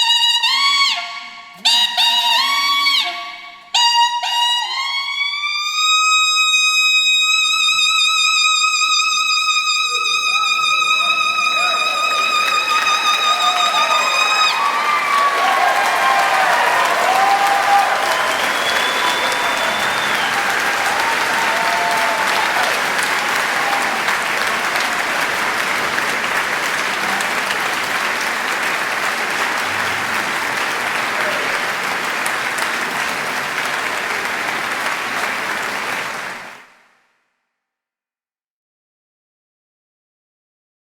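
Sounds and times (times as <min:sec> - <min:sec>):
audience applause: 0:09.6 - 0:36.8.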